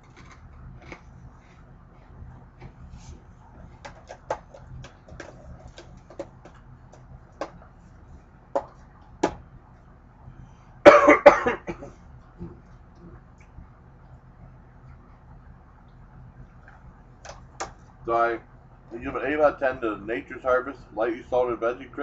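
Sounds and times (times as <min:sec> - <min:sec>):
chewing crunchy crisps: 0:00.0 - 0:01.6
person coughing: 0:10.9 - 0:11.9.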